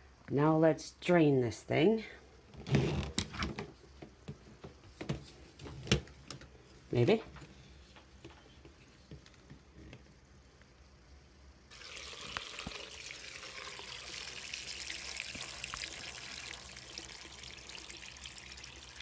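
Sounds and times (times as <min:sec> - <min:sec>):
water pouring into sink: 0:11.7 - 0:19.0.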